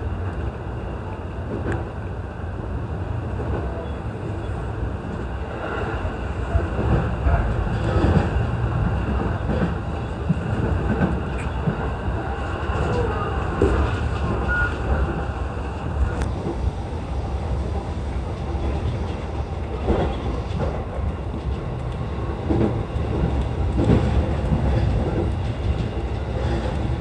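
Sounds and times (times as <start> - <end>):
train wheels rumbling on rail: 0.0 - 27.0
track clacks: 5.0 - 27.0.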